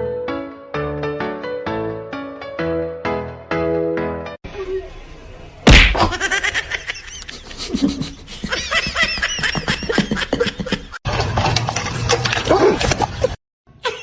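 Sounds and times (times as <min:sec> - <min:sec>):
loud thump: 0:05.7 - 0:06.2
person laughing in high bursts: 0:06.0 - 0:11.0.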